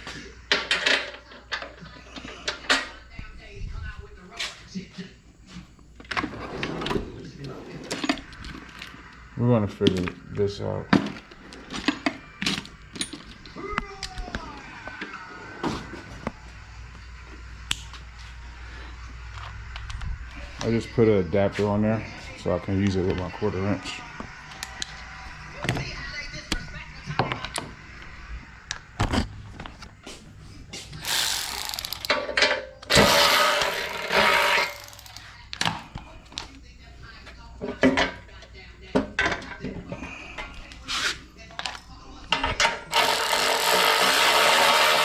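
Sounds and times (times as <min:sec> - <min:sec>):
ratchet rasping: 0:31.0 - 0:32.2, 0:32.9 - 0:35.2, 0:42.9 - 0:45.0
hand tools clicking and clinking: 0:31.0 - 0:35.2.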